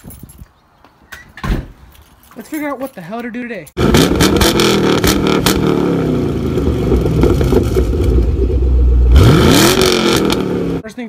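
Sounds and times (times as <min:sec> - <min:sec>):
car engine revving: 0:03.8 - 0:10.8.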